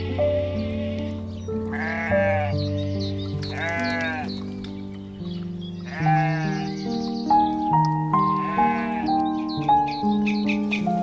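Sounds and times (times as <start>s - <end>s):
sheep bleating: 0.0s - 2.7s, 3.5s - 4.4s, 5.8s - 6.8s, 8.2s - 9.3s
background music: 0.0s - 11.0s.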